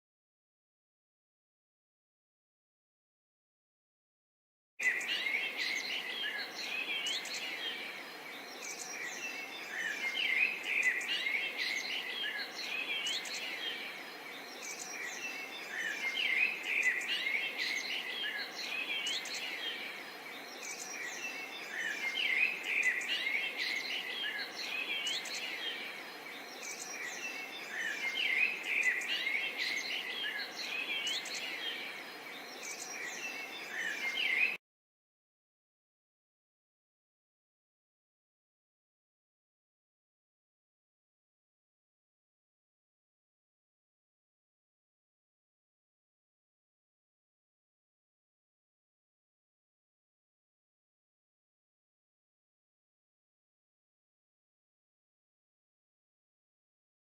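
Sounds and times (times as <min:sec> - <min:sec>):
songbirds chirping and twittering: 0:04.8 - 0:34.6.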